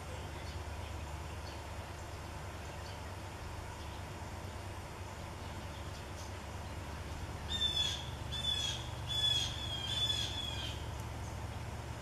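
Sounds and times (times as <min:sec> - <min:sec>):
bird calling: 0:07.4 - 0:11.0.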